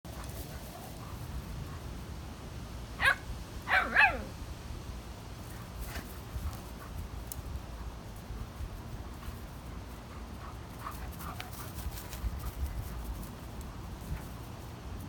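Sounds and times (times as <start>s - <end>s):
dog barking: 3.0s - 4.3s.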